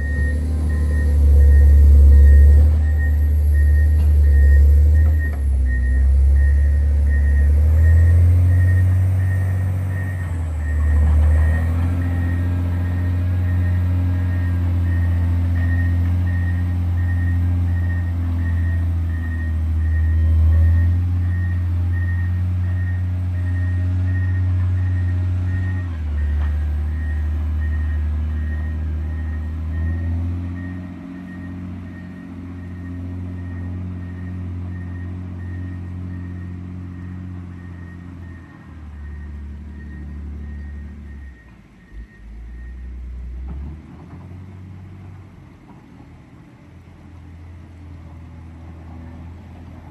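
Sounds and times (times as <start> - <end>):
faint high beeps: 0.0 - 43.1
diesel engine under load: 0.0 - 49.9.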